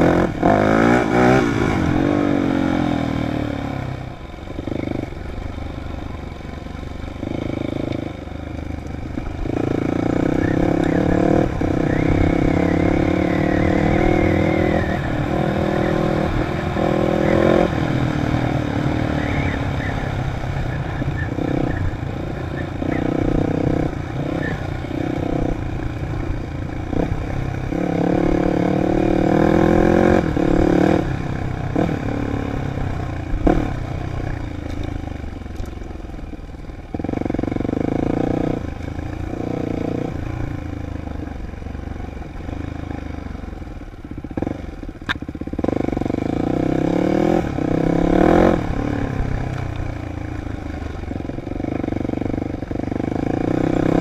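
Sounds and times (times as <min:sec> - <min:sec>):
dirt bike engine revving: 0:00.0 - 0:03.9, 0:07.1 - 0:34.4, 0:45.4 - 0:54.0.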